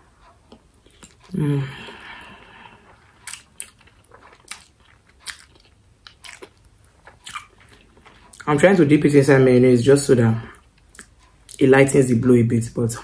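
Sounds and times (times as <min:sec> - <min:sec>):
person chewing and slurping: 0:00.5 - 0:08.5.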